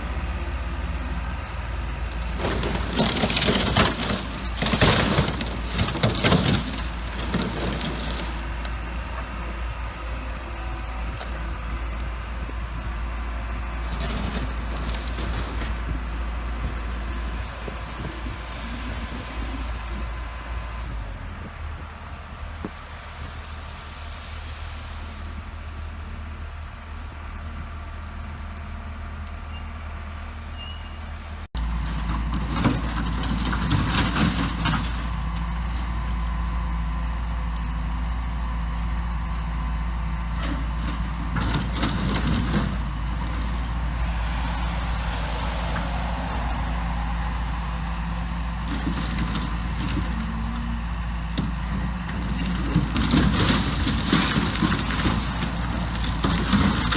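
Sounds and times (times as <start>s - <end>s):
excavator diesel engine running: 0.0s - 56.9s
metal tanks clanking and crunching: 1.3s - 20.0s, 31.6s - 56.9s.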